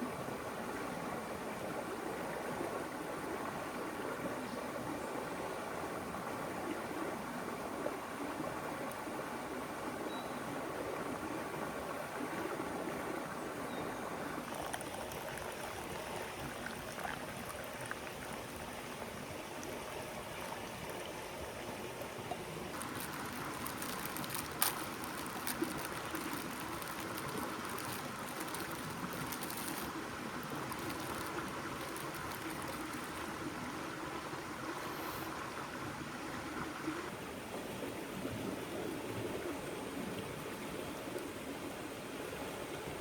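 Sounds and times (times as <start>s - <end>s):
river water rushing: 14.2s - 37.4s.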